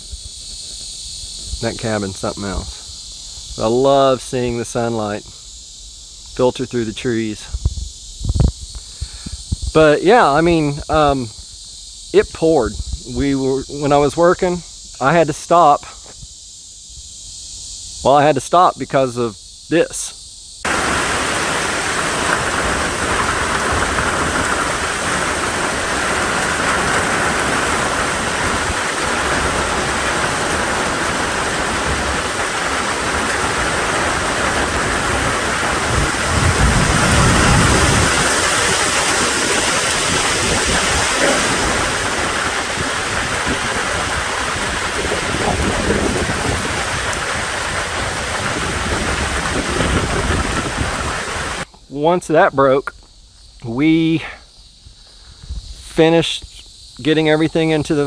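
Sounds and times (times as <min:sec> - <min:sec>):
heavy rain pouring: 0:20.7 - 0:51.7.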